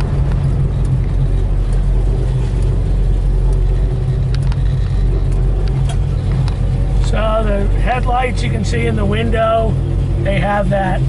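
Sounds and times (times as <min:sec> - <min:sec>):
light clicks: 0:00.0 - 0:07.2
car engine humming: 0:00.0 - 0:11.0.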